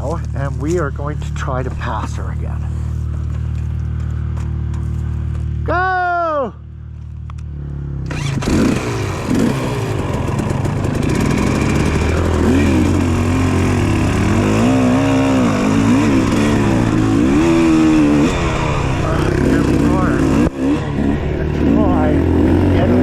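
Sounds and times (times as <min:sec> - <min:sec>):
dirt bike engine revving: 0:07.5 - 0:23.0.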